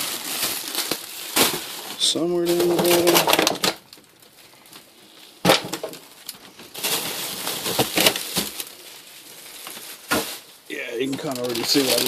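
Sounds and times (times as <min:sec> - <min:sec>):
packages clacking: 0:00.0 - 0:12.0
plastic bags rustling: 0:00.0 - 0:12.0
knock of frozen items: 0:05.4 - 0:06.0, 0:10.1 - 0:10.4.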